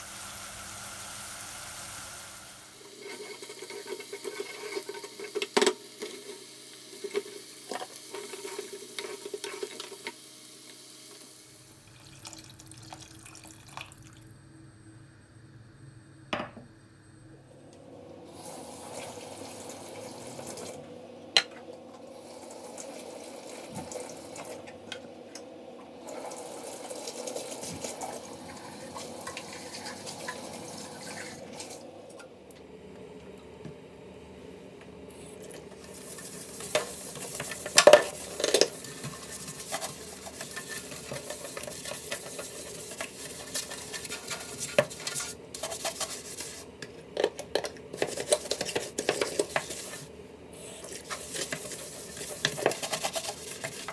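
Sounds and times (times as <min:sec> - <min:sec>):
utensil stirring in a pan: 0:00.0 - 0:13.9, 0:26.0 - 0:31.8, 0:35.3 - 0:53.9
food sizzling in a pan: 0:00.0 - 0:14.4, 0:26.0 - 0:31.6, 0:35.2 - 0:46.8, 0:48.0 - 0:53.9
dishes and cutlery clinking: 0:35.9 - 0:46.5.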